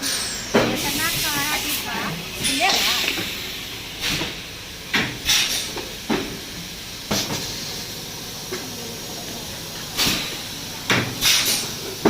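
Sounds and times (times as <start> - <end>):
short compressed air hissing bursts: 0.0 - 8.0, 10.0 - 12.0.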